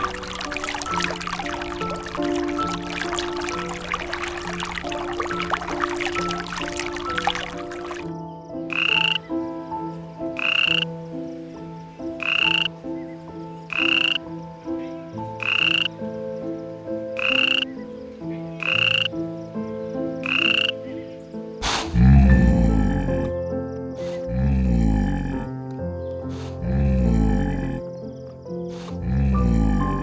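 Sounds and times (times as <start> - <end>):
soft steady musical tones: 0.0 - 24.0.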